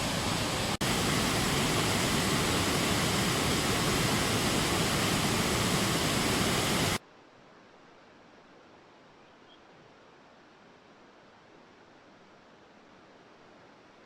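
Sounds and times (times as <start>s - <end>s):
flood water rushing: 0.0s - 7.0s.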